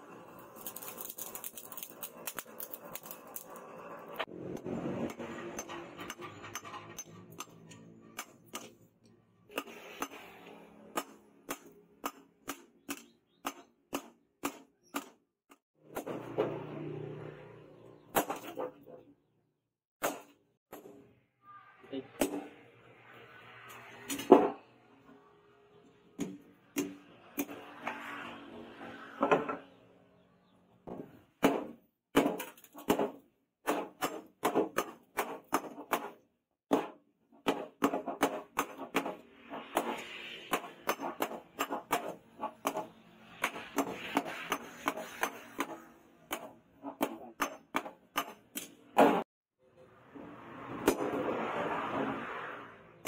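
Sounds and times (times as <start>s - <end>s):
hammer striking steel: 4.5s - 8.8s, 10.9s - 15.2s, 33.7s - 49.2s.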